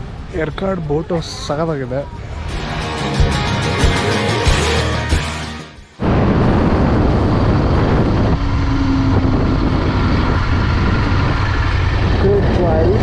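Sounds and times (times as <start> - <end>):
background music: 2.0 - 6.0
wind rush on microphone: 6.0 - 13.0
motorcycle engine running: 6.1 - 13.0.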